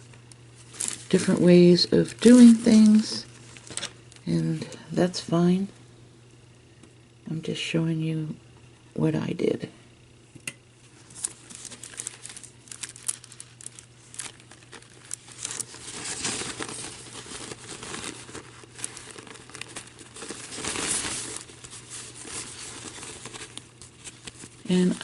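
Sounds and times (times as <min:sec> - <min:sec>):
paper napkin crinkling and tearing: 0:00.0 - 0:04.0, 0:10.9 - 0:25.0.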